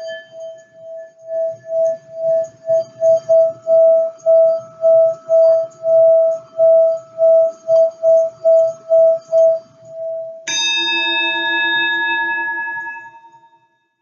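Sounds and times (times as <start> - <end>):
crystal singing bowl ringing: 0.0 - 13.7
metal bell struck: 10.5 - 13.6.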